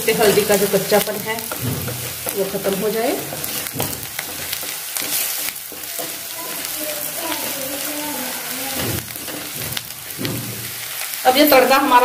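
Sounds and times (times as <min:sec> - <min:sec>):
onions sizzling in hot oil: 0:00.0 - 0:12.0
wooden spatula scraping a wok: 0:00.1 - 0:11.9.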